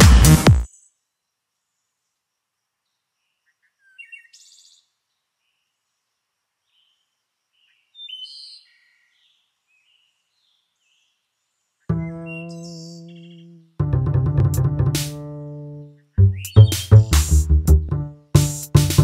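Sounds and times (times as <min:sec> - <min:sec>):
birds chirping: 0:11.9 - 0:13.8, 0:15.9 - 0:17.1.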